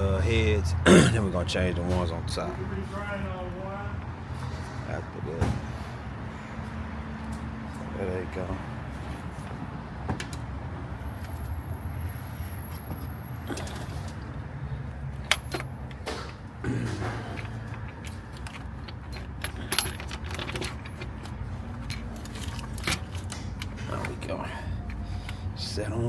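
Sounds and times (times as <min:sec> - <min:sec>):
clinks and knocks of tools: 0:15.2 - 0:25.5.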